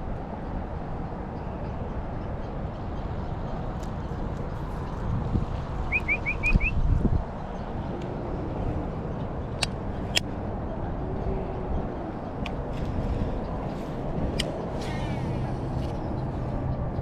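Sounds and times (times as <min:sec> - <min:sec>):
low outdoor rumble: 0:00.0 - 0:17.0
bird chirping: 0:05.9 - 0:06.8.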